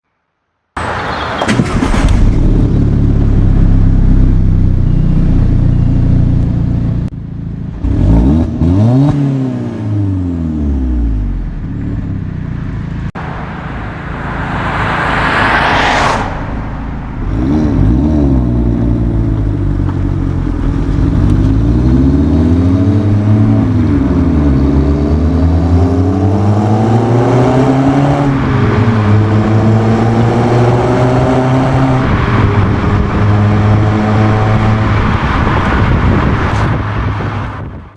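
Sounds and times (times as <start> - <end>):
car engine accelerating hard: 0.8 - 12.1, 13.1 - 37.9
loud rushing noise: 13.2 - 17.5.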